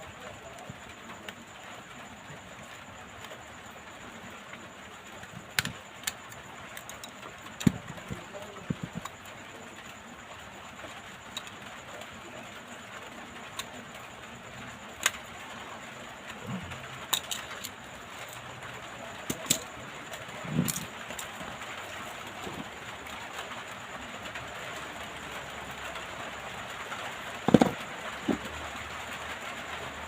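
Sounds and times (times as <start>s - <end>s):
steady hiss: 0.0s - 30.0s
small tools clicking and tapping: 5.2s - 9.2s, 14.9s - 15.3s, 17.1s - 18.5s, 19.2s - 21.6s, 27.4s - 28.5s.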